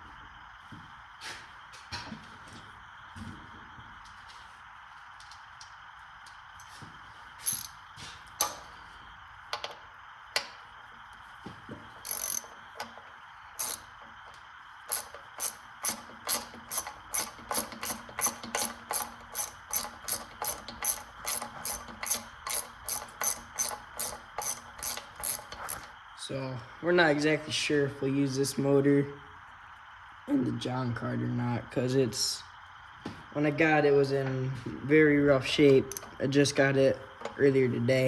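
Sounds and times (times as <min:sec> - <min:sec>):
ratchet wrench clicking: 0:07.4 - 0:07.8, 0:12.0 - 0:13.0, 0:13.6 - 0:14.0, 0:14.9 - 0:25.9, 0:35.9 - 0:36.2.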